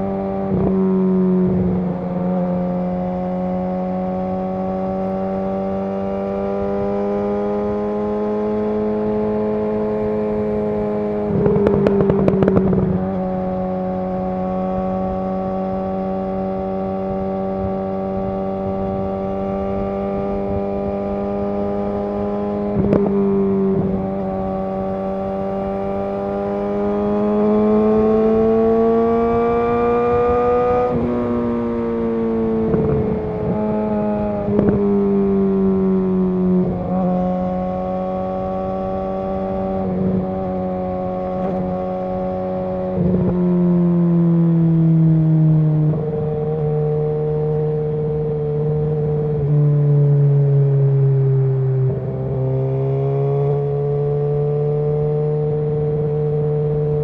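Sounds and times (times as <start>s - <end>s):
motorcycle engine running: 0.3s - 44.3s.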